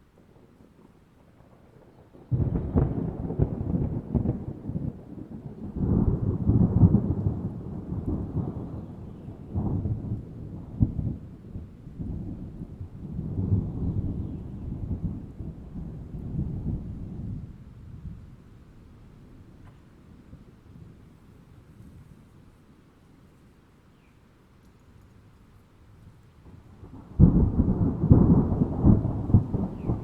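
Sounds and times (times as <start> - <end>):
thunder rumbling: 0.0 - 22.2, 26.4 - 30.0
rain: 0.0 - 30.0
sharp thunder crack: 1.4 - 11.3, 26.5 - 30.0.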